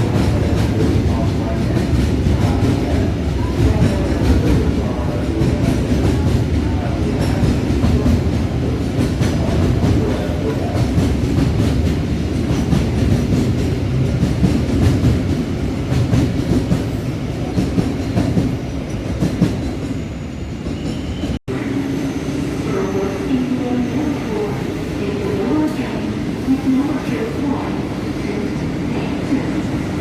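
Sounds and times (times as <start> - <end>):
train wheels rumbling: 0.0 - 22.0.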